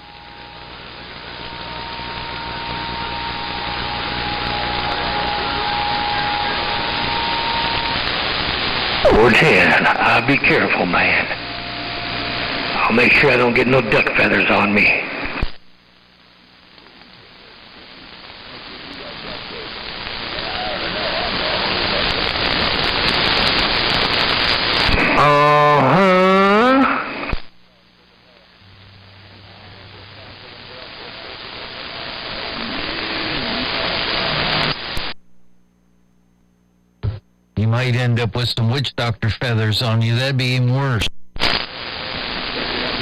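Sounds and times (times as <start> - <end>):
radio static hiss: 0.0 - 43.0.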